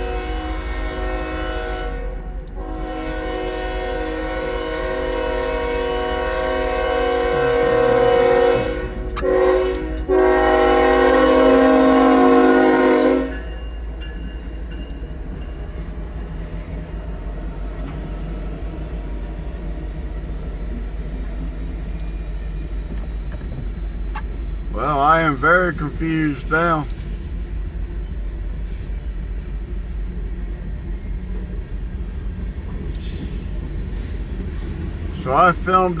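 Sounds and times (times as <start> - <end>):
locomotive air horn blasts: 0.0 - 13.6
train rumbling: 0.0 - 36.0.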